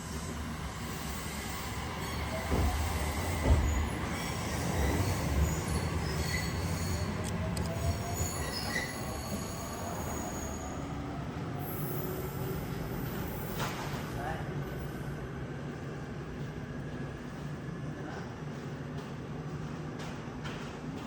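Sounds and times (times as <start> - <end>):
train rumble: 0.0 - 11.6
train wheels squealing on rails: 0.0 - 15.2.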